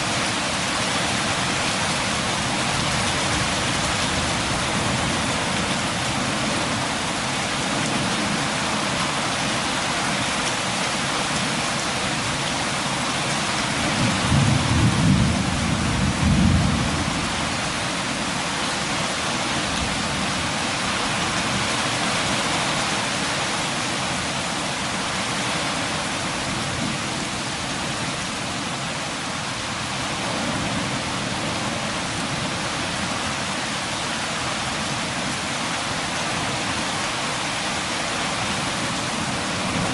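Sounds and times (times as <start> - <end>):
rain pattering: 0.0 - 39.9
thunder rumbling: 13.8 - 17.8.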